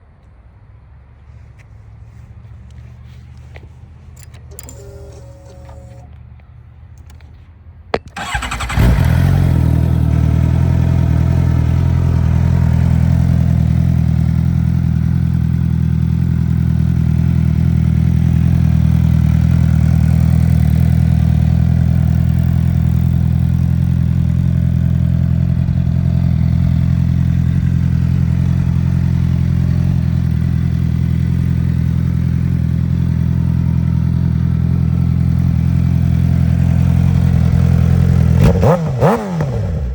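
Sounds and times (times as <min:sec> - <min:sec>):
motorcycle engine starting and idling: 0:03.3 - 0:07.4, 0:08.0 - 0:39.9
clicks: 0:03.3 - 0:08.8.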